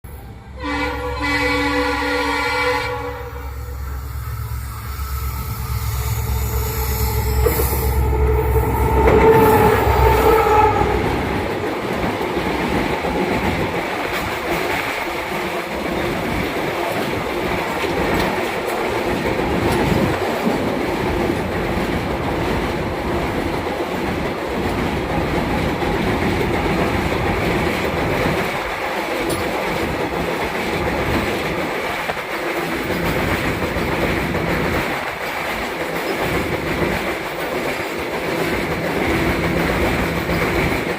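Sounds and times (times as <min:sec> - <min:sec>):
diesel locomotive engine: 0:00.0 - 0:40.9
locomotive horn: 0:00.1 - 0:11.4
wagon wheels clattering on rails: 0:11.3 - 0:40.9.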